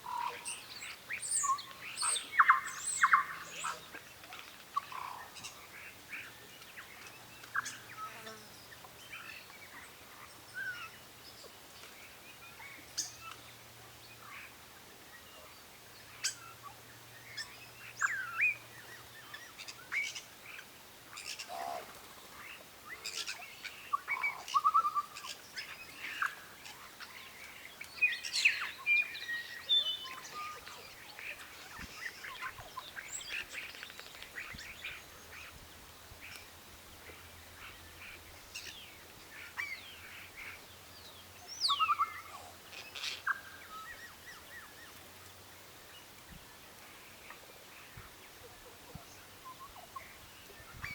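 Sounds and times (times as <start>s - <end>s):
birds chirping and calling: 17.4s - 35.6s, 37.6s - 45.0s.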